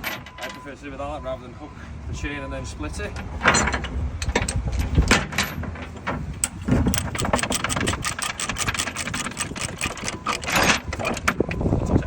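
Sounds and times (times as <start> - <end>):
ratchet chain binder clicking: 6.4 - 11.4.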